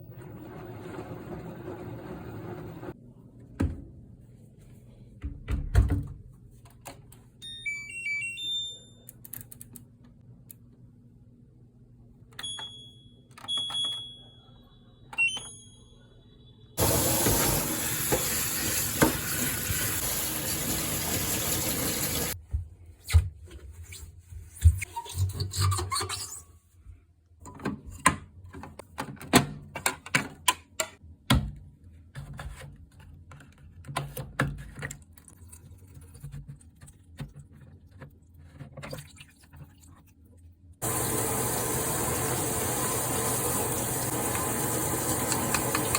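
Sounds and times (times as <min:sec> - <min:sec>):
washing machine clicks and knocks: 0:05.2 - 0:06.2
electronic button beeps: 0:13.4 - 0:14.3, 0:15.1 - 0:15.8
water rushing in: 0:16.8 - 0:22.4, 0:40.8 - 0:45.9.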